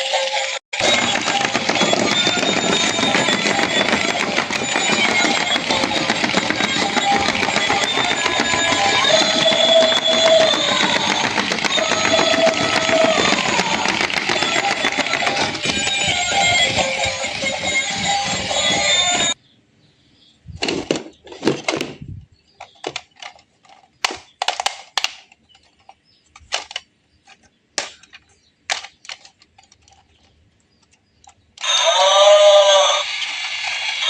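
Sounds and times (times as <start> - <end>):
music: 0.0 - 19.4.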